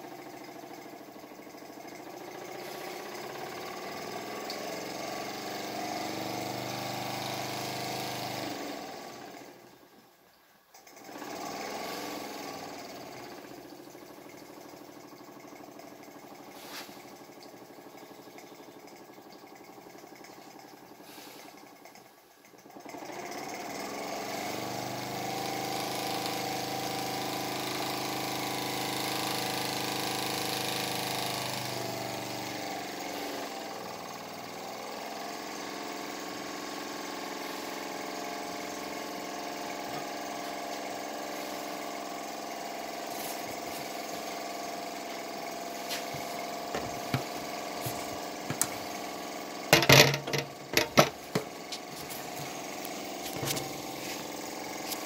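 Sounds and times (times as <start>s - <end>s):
steam engine running: 0.0s - 9.2s, 22.8s - 55.0s
sharp clattering knocks: 49.7s - 52.6s.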